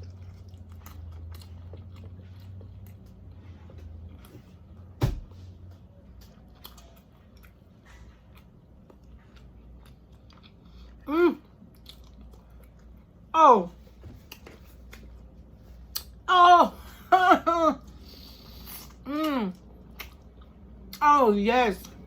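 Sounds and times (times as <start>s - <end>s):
person chewing wetly: 0.0s - 4.8s, 5.7s - 13.3s, 17.9s - 21.0s.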